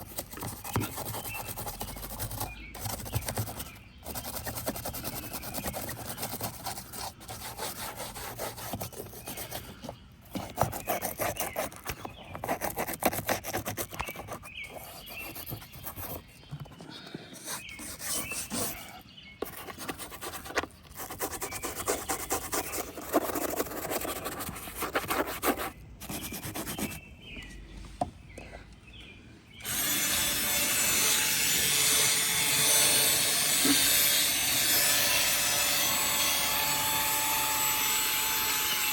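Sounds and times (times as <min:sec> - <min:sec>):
brush scrubbing: 0:00.0 - 0:16.3, 0:17.4 - 0:27.0.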